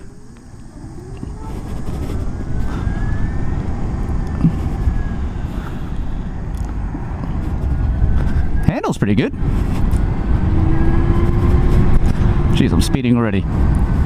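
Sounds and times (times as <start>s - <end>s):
electric motor whine: 0.0s - 8.0s
wind and road rumble: 0.0s - 14.0s.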